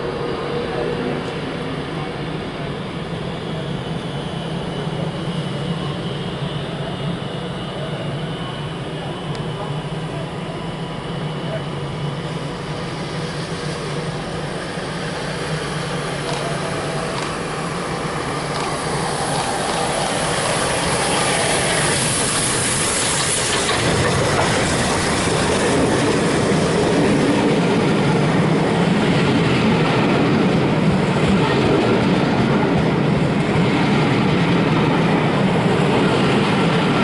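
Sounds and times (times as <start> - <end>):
steam locomotive hiss: 8.1 - 26.7
train wheels clacking over rail joints: 22.3 - 26.2.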